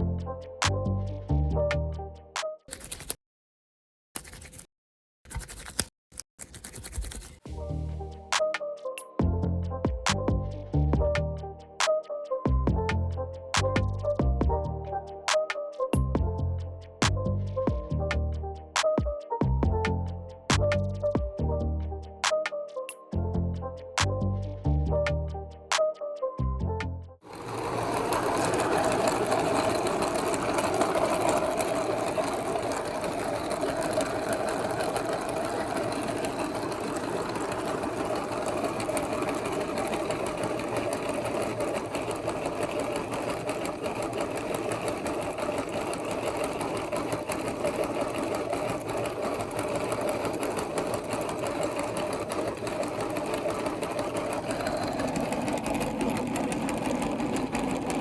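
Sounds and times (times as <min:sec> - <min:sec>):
electric meat grinder running: 0:27.2 - 0:58.0.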